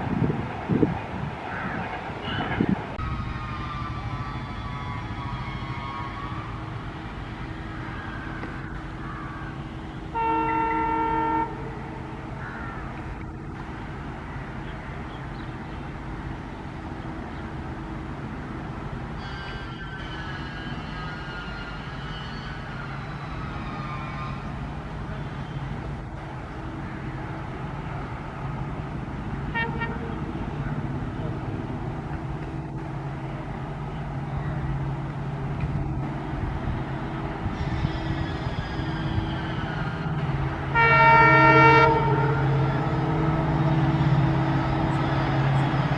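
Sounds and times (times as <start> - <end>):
train rumbling: 0.0 - 45.9
locomotive horn blast: 2.2 - 6.8, 9.8 - 12.2, 29.5 - 30.8, 37.4 - 45.9.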